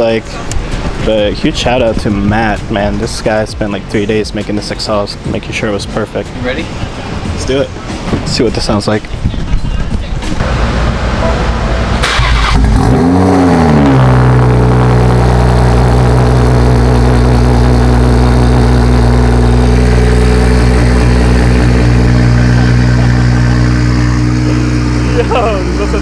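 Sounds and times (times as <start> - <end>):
car engine starting and idling: 10.2 - 26.0.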